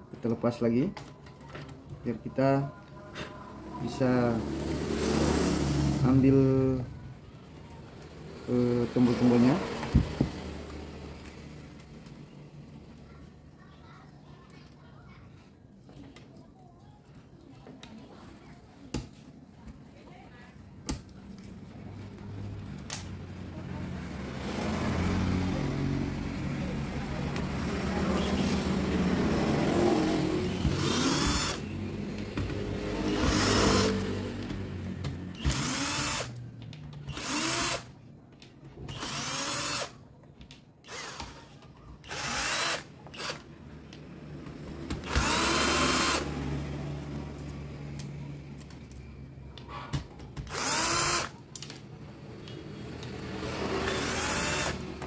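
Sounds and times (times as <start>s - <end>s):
electric screwdriver whining: 30.6s - 31.6s, 33.2s - 34.1s, 35.4s - 36.4s, 37.1s - 37.9s, 38.9s - 40.0s, 40.8s - 43.5s, 44.9s - 46.3s, 50.4s - 51.4s, 53.7s - 54.9s.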